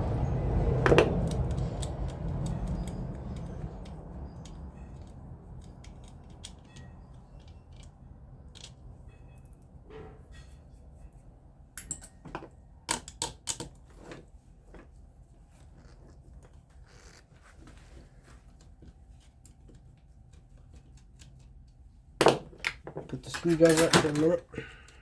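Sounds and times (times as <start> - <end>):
metal parts clinking on workbench: 11.8 - 13.8, 22.2 - 24.4.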